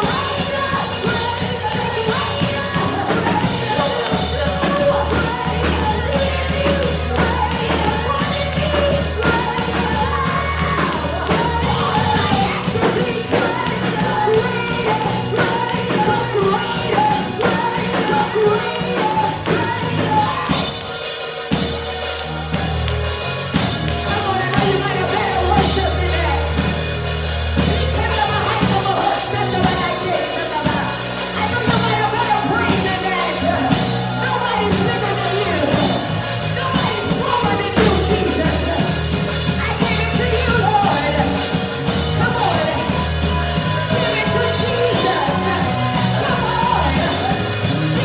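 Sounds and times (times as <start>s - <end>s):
live worship band music: 0.0s - 48.0s.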